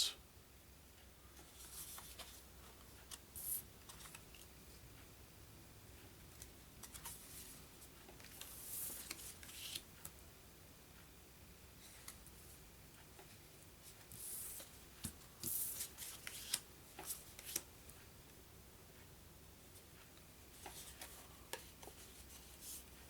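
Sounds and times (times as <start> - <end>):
cardboard cards rustling and clicking: 1.4 - 4.5, 6.3 - 9.9, 14.1 - 17.7.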